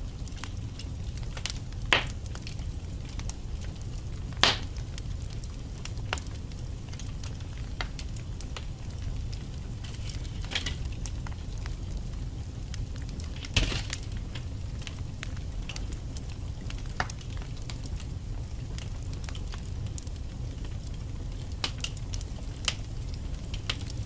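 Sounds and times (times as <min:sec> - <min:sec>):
fire crackling: 0:00.0 - 0:24.0
low rumble of flames: 0:00.0 - 0:24.0
logs popping: 0:09.7 - 0:11.3, 0:13.2 - 0:14.5.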